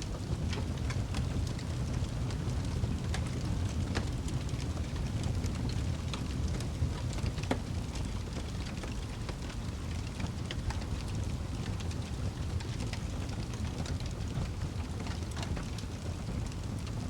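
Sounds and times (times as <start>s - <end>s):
fire burning: 0.0s - 17.0s
fire crackling and popping: 0.0s - 17.0s.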